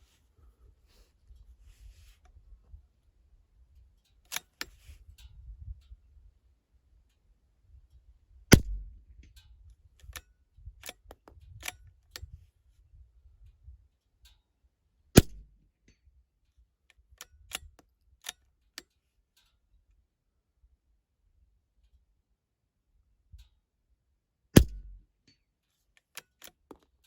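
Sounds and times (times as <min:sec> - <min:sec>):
rifle bolt metallic clicks: 0:04.2 - 0:04.8, 0:08.5 - 0:09.0, 0:10.8 - 0:12.4, 0:15.2 - 0:15.5, 0:17.2 - 0:19.0, 0:24.6 - 0:25.0, 0:26.0 - 0:26.9
rifle shots: 0:08.5 - 0:08.9, 0:15.2 - 0:15.4, 0:24.6 - 0:25.0.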